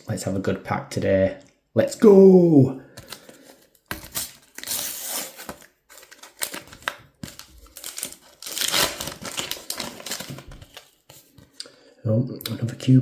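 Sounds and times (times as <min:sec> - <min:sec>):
wrapper crinkling and rustling: 0:03.0 - 0:11.6.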